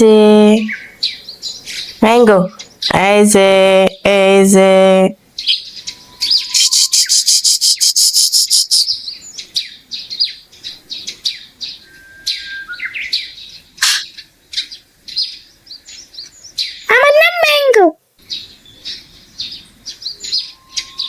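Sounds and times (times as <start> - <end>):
lovebird chirping: 5.4 - 17.6, 18.2 - 21.0.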